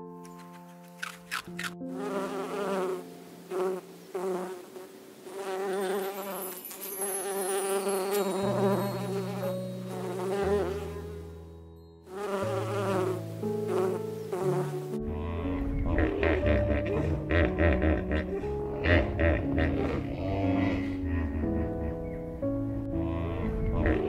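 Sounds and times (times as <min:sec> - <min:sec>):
bees buzzing: 0:01.4 - 0:11.5, 0:12.1 - 0:22.1
low held notes: 0:14.8 - 0:24.0.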